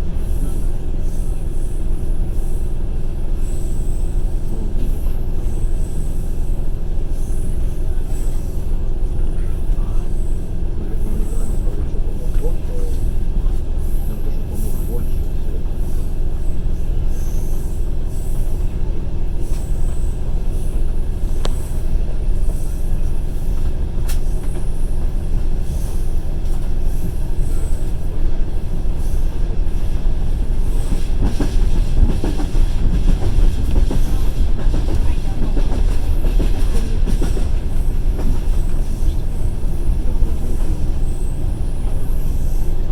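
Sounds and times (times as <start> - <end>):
train wheel and rail rumble: 0.0 - 42.9
rail-joint clacks: 11.0 - 42.9.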